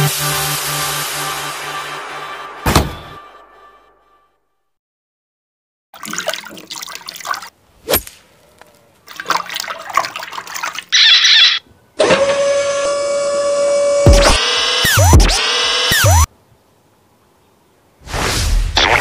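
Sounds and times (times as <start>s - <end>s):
sharp knock: 2.6s - 3.2s.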